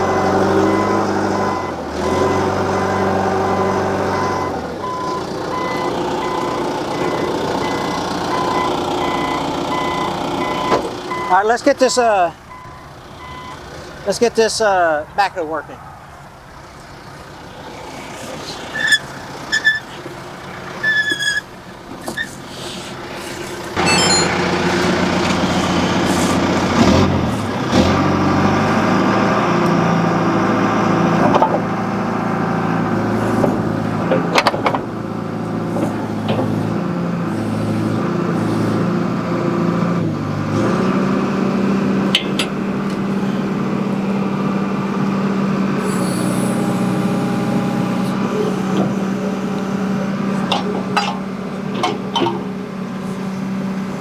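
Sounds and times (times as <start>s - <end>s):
backhoe diesel engine: 0.0s - 54.0s
short high beeps: 23.8s - 24.6s.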